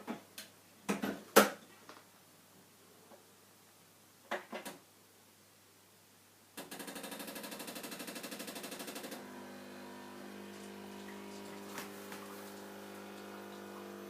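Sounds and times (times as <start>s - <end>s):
coffee machine pump pulsing: 7.4s - 14.0s
coffee machine pump hum: 8.5s - 14.0s.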